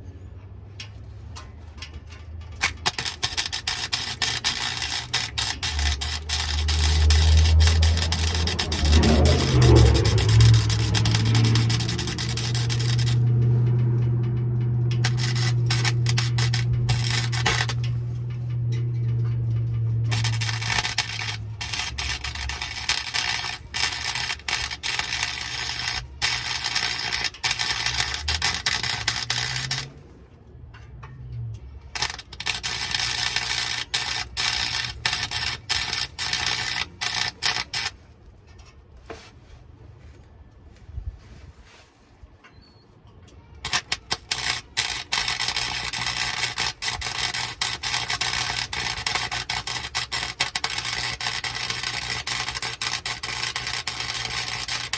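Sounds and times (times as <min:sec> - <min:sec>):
welding arc crackling: 0:02.6 - 0:30.0, 0:32.0 - 0:38.0, 0:43.6 - 0:54.9
steady low hum: 0:02.6 - 0:30.5.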